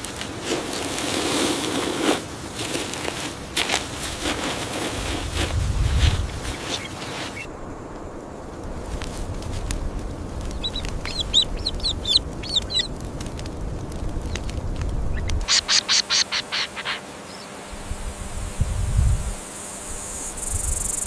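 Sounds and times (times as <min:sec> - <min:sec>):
harsh bird calls: 0:10.4 - 0:13.0, 0:15.1 - 0:17.7
bird chirps: 0:10.5 - 0:12.9, 0:15.1 - 0:17.6.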